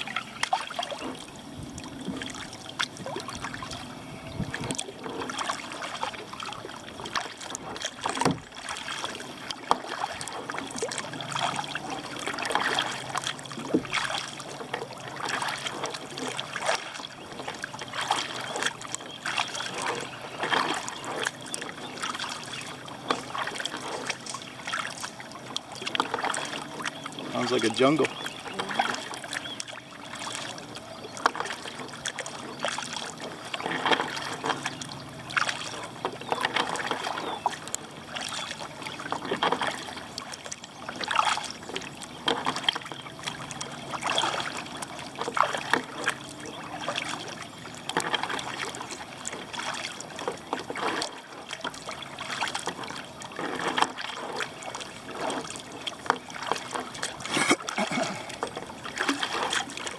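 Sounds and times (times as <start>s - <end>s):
kayak paddle strokes in water: 0.0s - 59.9s
water trickling off paddle: 0.0s - 59.9s.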